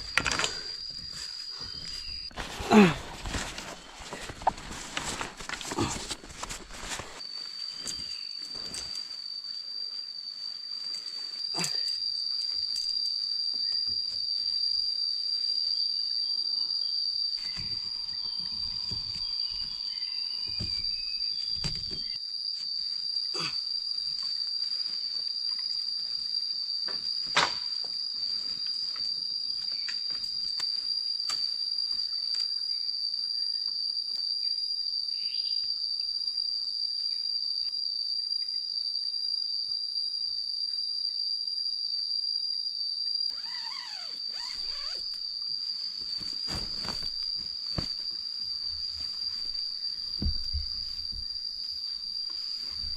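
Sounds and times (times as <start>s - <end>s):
night insects droning: 0.0s - 52.9s
low thumps and rustling: 45.9s - 52.9s.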